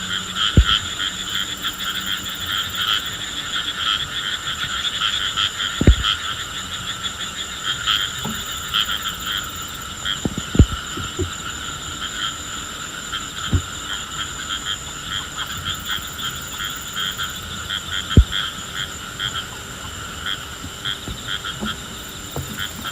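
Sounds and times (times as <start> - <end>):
frogs calling: 0.0 - 22.9
sharp low thumps: 0.6 - 0.8.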